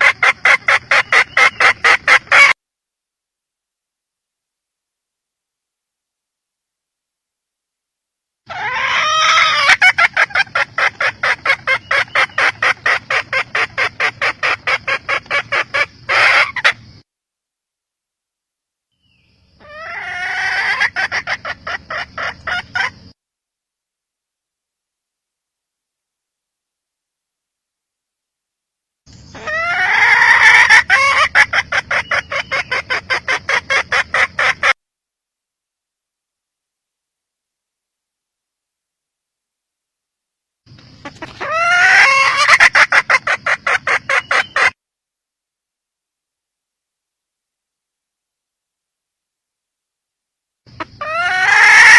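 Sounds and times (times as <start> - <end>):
hen clucking: 0.0 - 2.6, 8.5 - 17.0, 19.6 - 23.2, 29.3 - 34.8, 40.7 - 44.8, 50.7 - 51.9.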